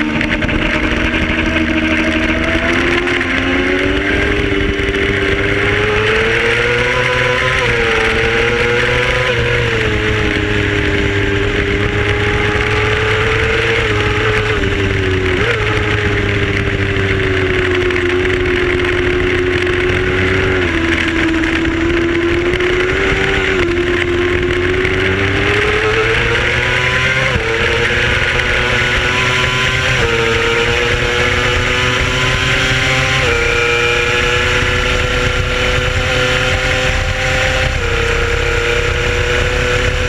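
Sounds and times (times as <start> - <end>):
motorcycle engine at high revs: 0.0 - 40.0.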